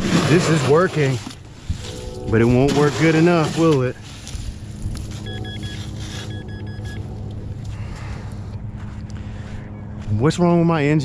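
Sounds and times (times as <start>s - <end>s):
steady low rumble: 0.0s - 11.0s
metal detector quick high beeps: 5.2s - 7.0s.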